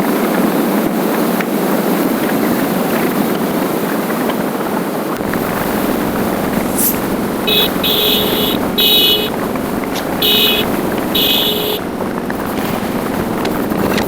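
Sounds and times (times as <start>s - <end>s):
motorcycle wind and road noise: 1.0s - 14.0s
high electronic beeps: 5.8s - 13.5s.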